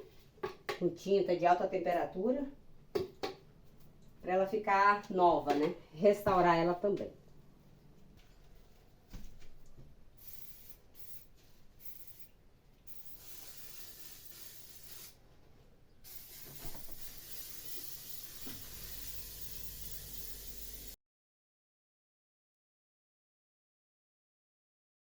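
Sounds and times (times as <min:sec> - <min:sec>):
aerosol spray can hissing: 0:10.2 - 0:11.2, 0:12.9 - 0:15.2, 0:16.1 - 0:21.0.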